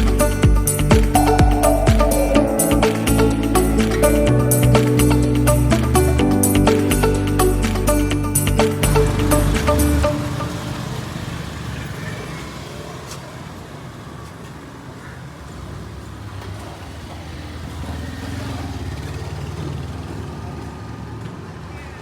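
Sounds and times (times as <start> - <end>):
engine humming: 0.0 - 12.8.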